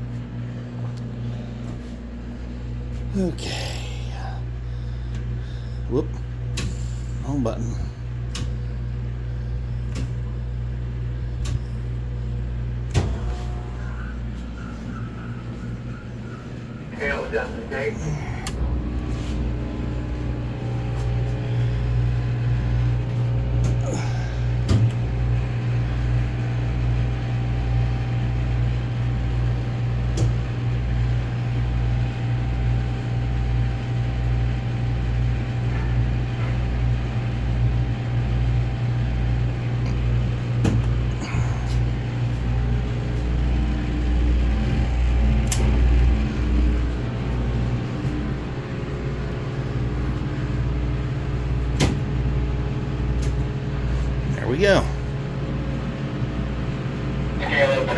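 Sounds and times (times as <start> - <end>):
heavy machinery humming: 0.0 - 57.9.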